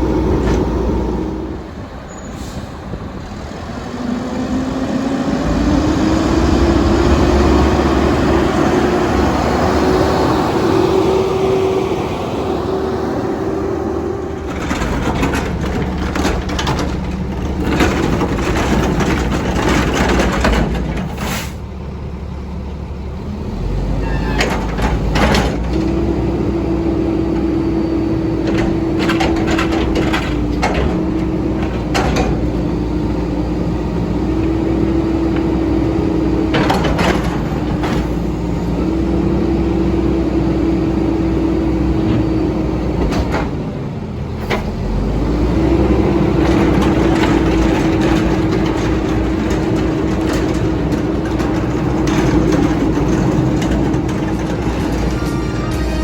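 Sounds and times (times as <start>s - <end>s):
garbage truck diesel engine running: 0.0s - 56.0s.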